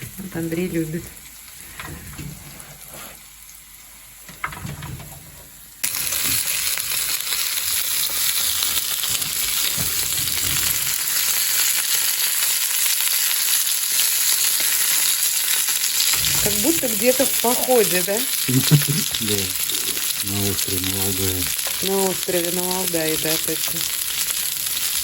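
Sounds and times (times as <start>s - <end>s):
dumplings sizzling in a pan: 5.6s - 25.0s.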